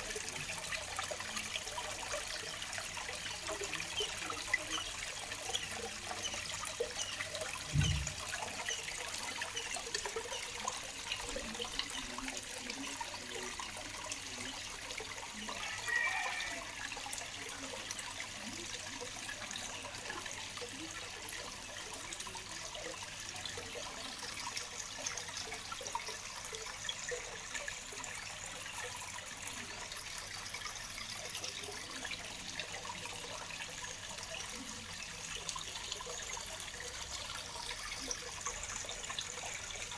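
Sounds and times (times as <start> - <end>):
short low thump: 7.7 - 8.2.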